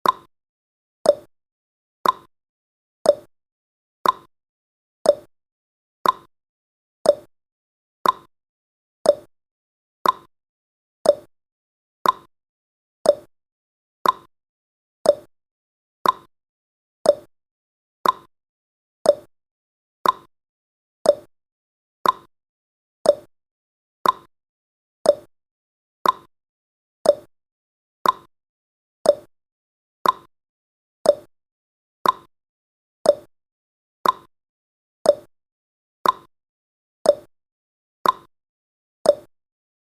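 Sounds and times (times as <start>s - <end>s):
clock ticking: 2.0s - 2.3s, 4.0s - 4.3s, 6.0s - 6.3s, 8.0s - 8.3s, 10.0s - 10.3s, 12.0s - 12.3s, 14.0s - 14.3s, 15.1s - 15.3s, 16.0s - 16.3s, 18.0s - 18.3s, 20.0s - 20.3s, 22.0s - 22.3s, 24.0s - 24.3s, 25.1s - 25.3s, 26.0s - 26.3s, 27.1s - 27.3s, 28.0s - 28.3s, 29.1s - 29.3s, 30.0s - 30.3s, 32.0s - 32.3s, 33.1s - 33.3s, 34.0s - 34.3s, 36.0s - 36.3s, 38.0s - 38.3s.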